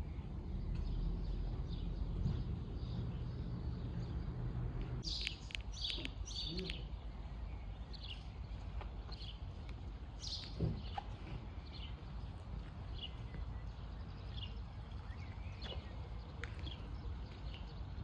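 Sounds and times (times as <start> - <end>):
small bird chirping: 5.0 - 9.5.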